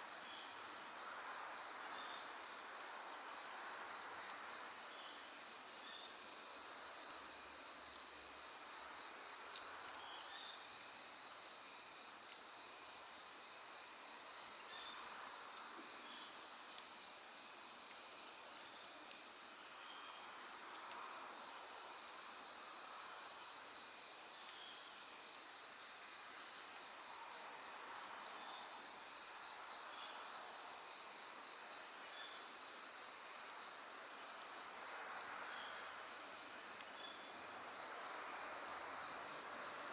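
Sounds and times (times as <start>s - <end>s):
crickets trilling: 0.0s - 39.9s
wood fire hissing and popping: 15.7s - 17.0s, 20.4s - 22.3s, 36.6s - 37.0s.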